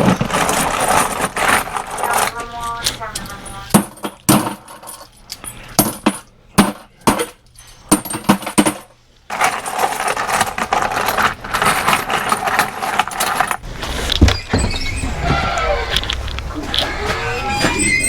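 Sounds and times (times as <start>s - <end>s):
metallic clinks: 0.0s - 13.6s
continuous rattling: 0.0s - 18.0s.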